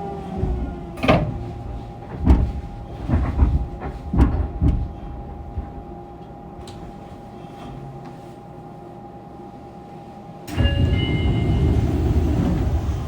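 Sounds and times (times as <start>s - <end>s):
train running rumble: 0.0s - 8.1s, 10.5s - 13.0s
train inverter whine: 4.9s - 13.0s.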